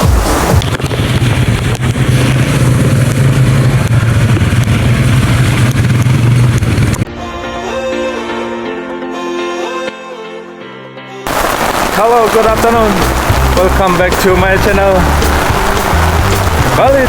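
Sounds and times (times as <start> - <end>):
music: 0.0 - 0.9, 7.1 - 17.0
quad bike engine running: 0.0 - 7.1, 12.6 - 17.0.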